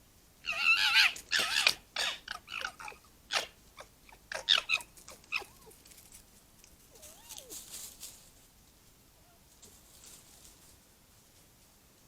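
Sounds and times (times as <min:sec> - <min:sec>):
foxes squealing: 0:00.4 - 0:05.8, 0:06.9 - 0:07.6.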